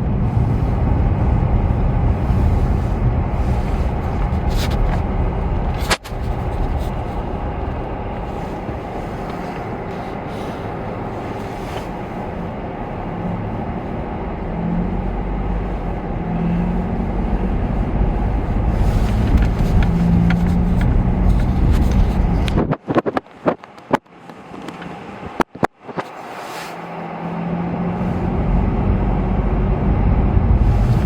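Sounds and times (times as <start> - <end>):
car driving on snowy road: 0.0 - 31.0.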